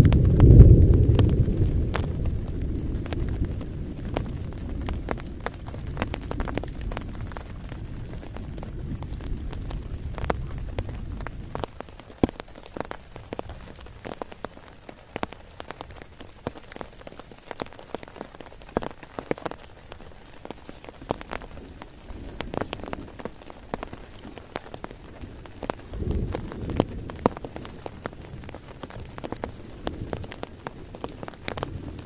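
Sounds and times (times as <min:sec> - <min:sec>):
low rumble: 0:00.0 - 0:11.6
raindrops tapping: 0:00.0 - 0:32.0
steady rainfall: 0:00.0 - 0:32.0.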